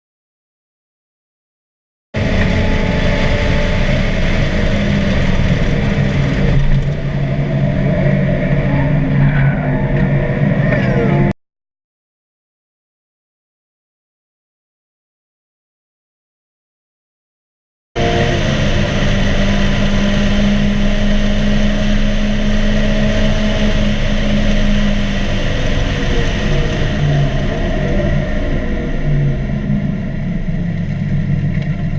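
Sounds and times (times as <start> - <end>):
car engine running hard: 2.2 - 11.4, 18.0 - 31.9
road and wind noise: 2.2 - 11.4, 18.0 - 31.9.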